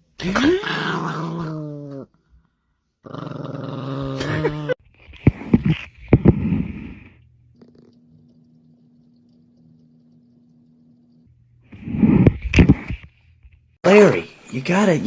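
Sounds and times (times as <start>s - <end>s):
dog growling: 0.2s - 2.1s, 3.0s - 4.8s, 6.2s - 8.3s.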